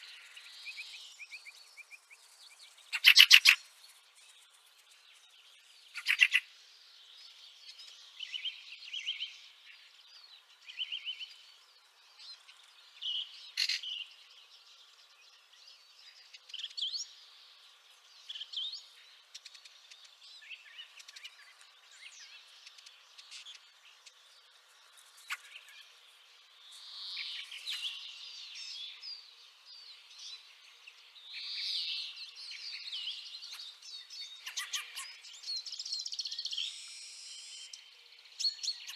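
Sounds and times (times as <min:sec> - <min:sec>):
birds chattering calls: 0:02.8 - 0:03.6, 0:06.0 - 0:06.4, 0:33.4 - 0:37.5.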